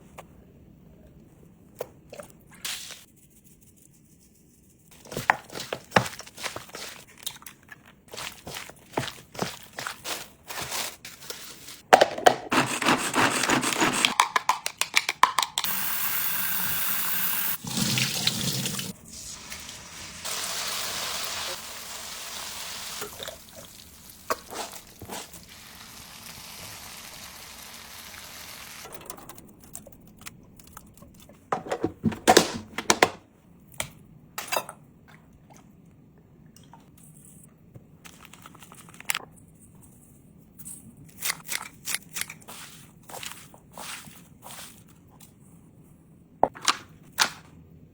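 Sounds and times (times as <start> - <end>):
water running from a tap: 15.7 - 28.9
clattering of dishes handled: 31.5 - 33.2.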